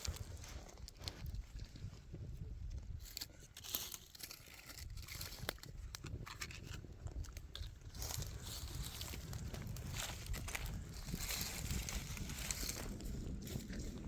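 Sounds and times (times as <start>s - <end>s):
dry twigs and leaves crunching: 0.0s - 14.0s.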